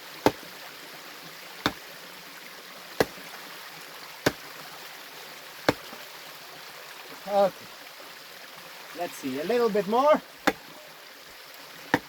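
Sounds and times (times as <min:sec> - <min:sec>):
stream rushing: 0:00.0 - 0:12.0
tool striking rock: 0:00.2 - 0:00.6, 0:01.6 - 0:01.9, 0:03.0 - 0:03.3, 0:04.2 - 0:04.6, 0:05.7 - 0:06.0, 0:10.4 - 0:10.8.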